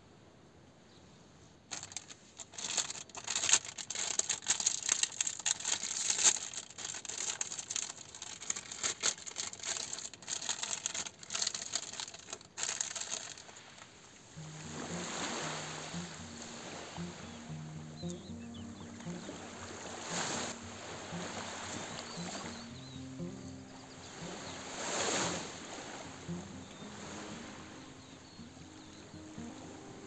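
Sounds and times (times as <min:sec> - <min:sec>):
material crinkling and crackling: 0:01.7 - 0:15.0.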